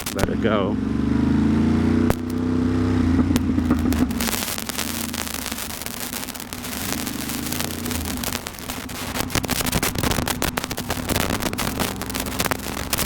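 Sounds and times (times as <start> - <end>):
motorcycle engine running: 0.0 - 13.0
wind and rain on microphone: 3.2 - 13.0.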